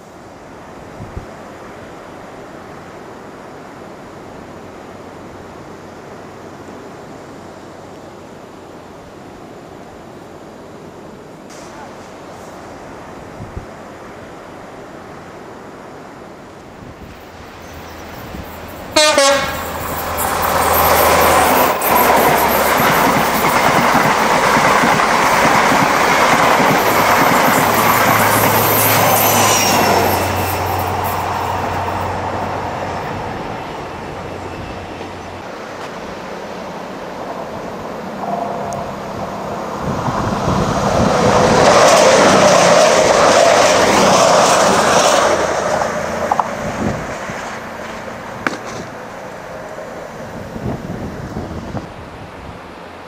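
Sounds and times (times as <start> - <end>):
rushing noise: 16.4 - 53.0
train wheels on rails: 17.0 - 50.5.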